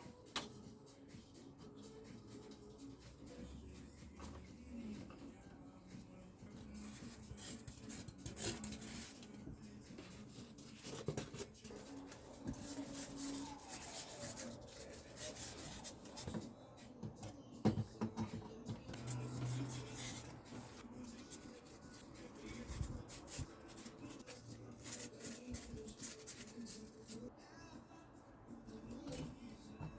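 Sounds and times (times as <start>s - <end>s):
rubbing and scraping on foam: 6.6s - 16.4s, 18.9s - 27.3s.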